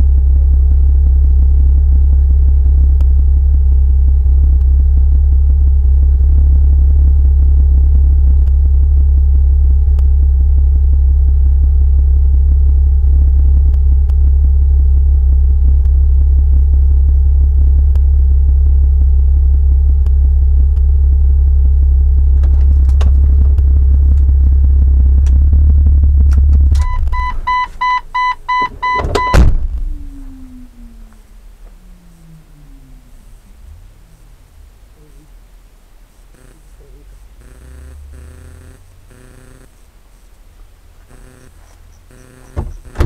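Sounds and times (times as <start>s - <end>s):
car engine running: 0.0s - 43.0s
short high beeps: 26.8s - 29.4s.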